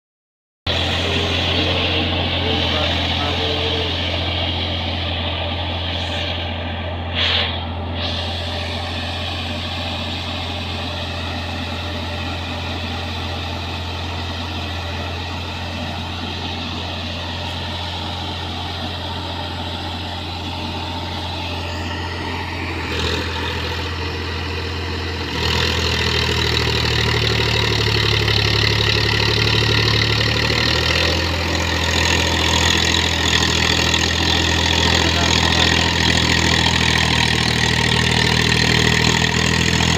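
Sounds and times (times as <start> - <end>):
tractor diesel engine running: 0.7 - 39.9.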